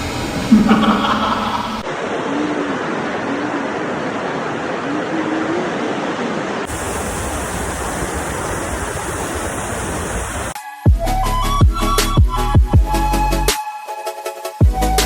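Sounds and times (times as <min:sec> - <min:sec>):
waterfall rushing: 0:01.5 - 0:10.6.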